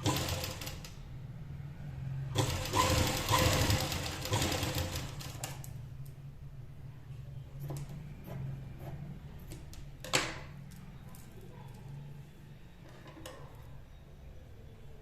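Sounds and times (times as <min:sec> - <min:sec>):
sewing machine stitching: 0:00.0 - 0:01.0, 0:02.3 - 0:05.6.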